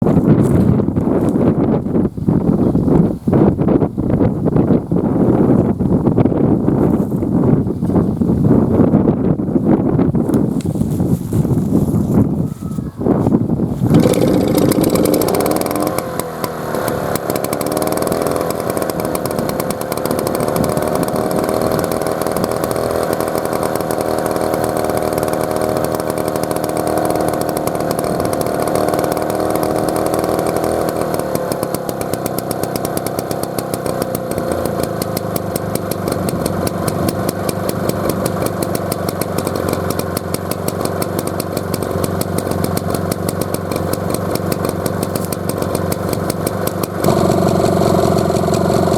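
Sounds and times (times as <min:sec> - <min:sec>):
stationary engine running: 0:13.9 - 0:48.9.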